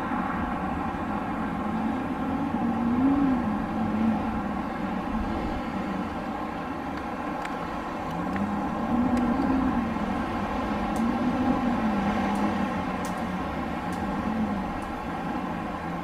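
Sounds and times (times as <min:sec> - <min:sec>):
wind blowing with moaning tone: 0:00.0 - 0:16.0.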